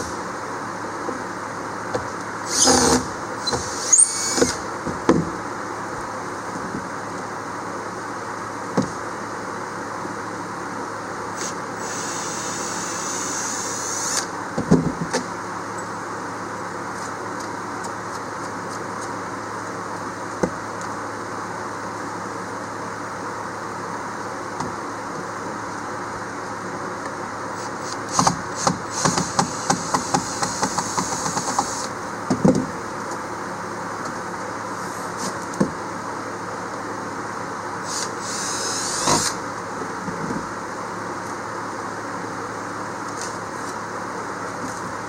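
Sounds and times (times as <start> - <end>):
steady background hum: 0.0 - 45.0
cordless drill whining: 2.5 - 4.6, 11.4 - 14.3, 28.9 - 31.9, 37.8 - 39.4.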